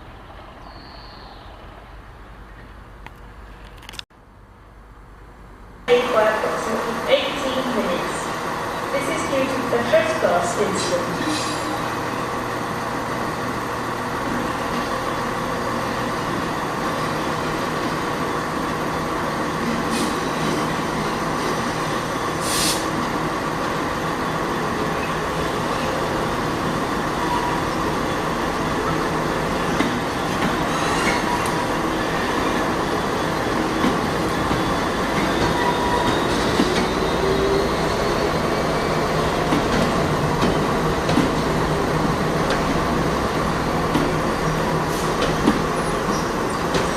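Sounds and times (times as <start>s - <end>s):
train engine hum: 0.0s - 46.9s
air hiss: 22.4s - 23.0s.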